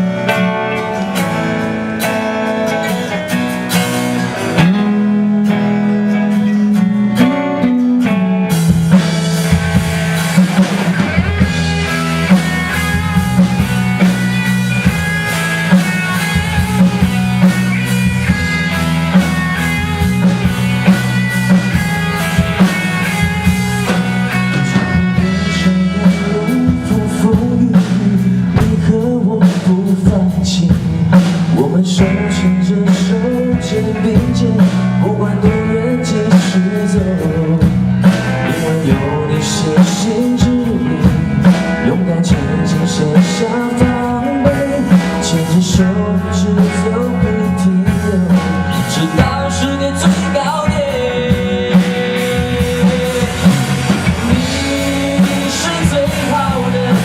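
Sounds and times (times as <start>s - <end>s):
live rock band playing: 0.0s - 57.0s
drum strokes: 8.5s - 28.9s, 47.5s - 57.0s.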